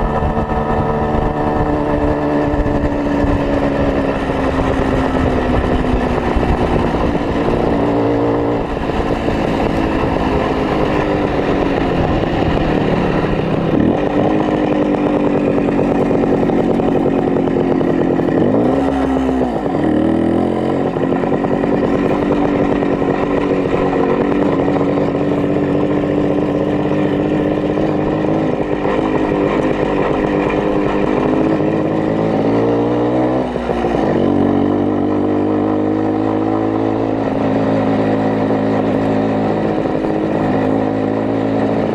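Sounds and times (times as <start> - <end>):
motorcycle two-stroke engine running: 0.0 - 41.9.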